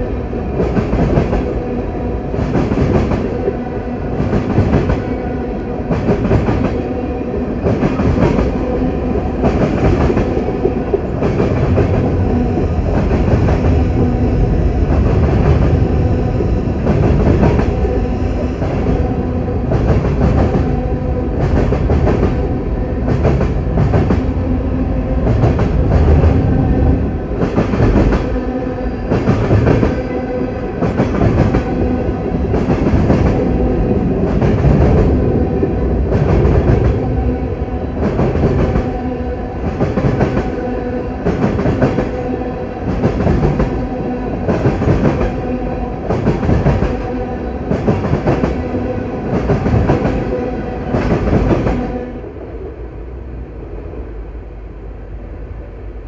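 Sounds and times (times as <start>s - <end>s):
train rumble: 0.0s - 56.0s.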